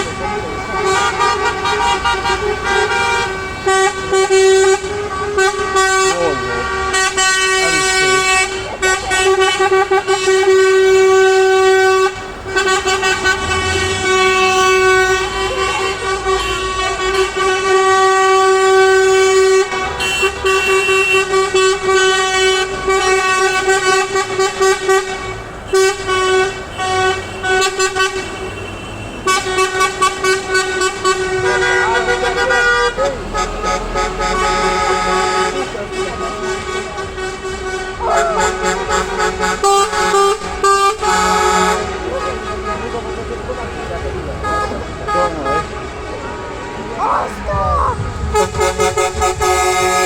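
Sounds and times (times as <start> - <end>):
truck air horn blasts: 0.0 - 50.0
low engine rumble: 45.8 - 50.0.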